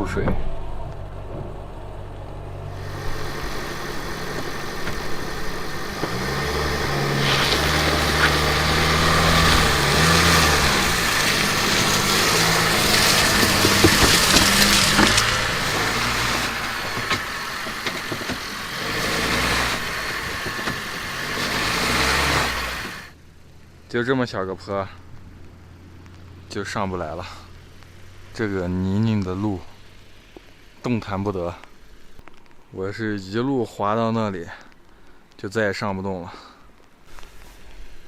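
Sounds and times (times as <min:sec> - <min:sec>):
loud rushing noise: 0:00.0 - 0:23.1
car engine revving: 0:00.0 - 0:32.2.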